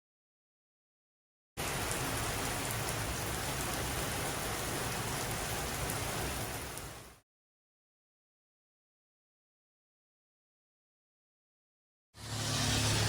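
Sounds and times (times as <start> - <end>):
heavy rain pouring: 1.6 - 7.2.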